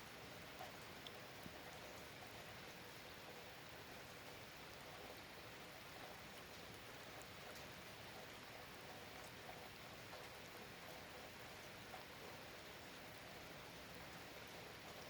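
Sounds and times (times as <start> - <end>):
faint steady rain: 0.0 - 15.0
rain drop ticks: 0.5 - 2.4, 5.9 - 12.3.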